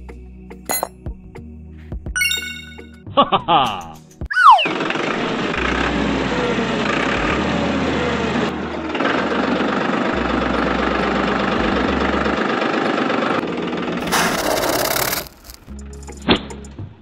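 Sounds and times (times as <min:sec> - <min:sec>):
toy tractor engine running: 0:12.7 - 0:15.7.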